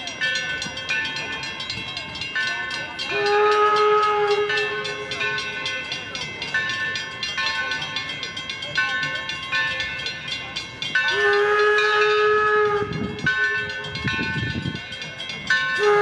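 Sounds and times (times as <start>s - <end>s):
train running with clicking: 0.0s - 16.0s
steam locomotive whistle: 3.0s - 5.4s, 11.1s - 13.9s, 15.7s - 16.0s.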